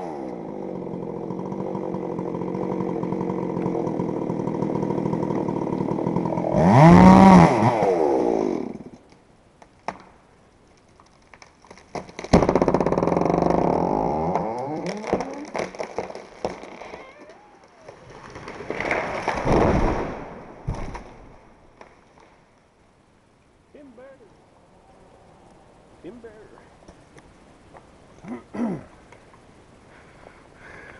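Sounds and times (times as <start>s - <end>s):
chainsaw running and revving: 0.0s - 8.8s.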